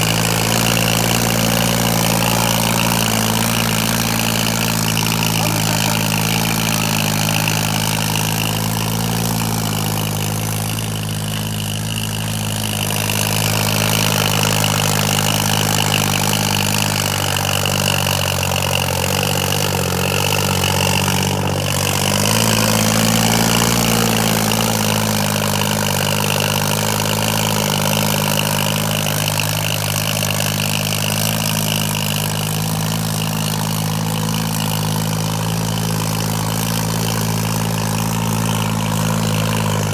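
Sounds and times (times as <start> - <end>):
high whine: 0.0 - 25.0
tractor diesel engine running: 0.0 - 39.9.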